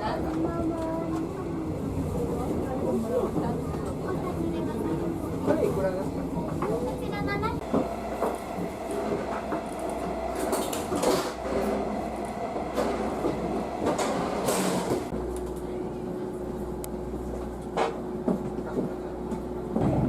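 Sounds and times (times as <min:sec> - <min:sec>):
rail car rumble: 0:00.0 - 0:20.0.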